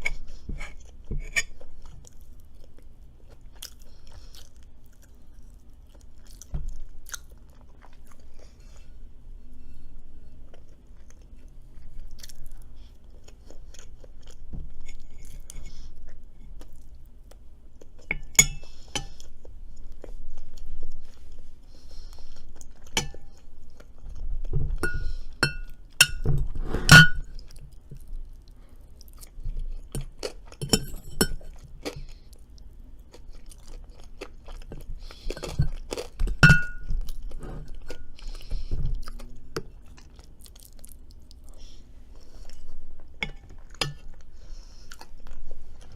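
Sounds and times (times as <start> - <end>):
person chewing food: 0.0 - 45.9
cutlery clinking on tableware: 36.2 - 36.8.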